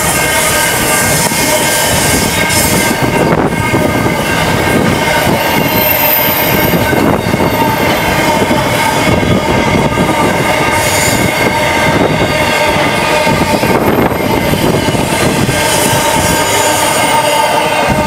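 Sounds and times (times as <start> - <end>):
freight train wheels on rails: 0.0 - 18.0.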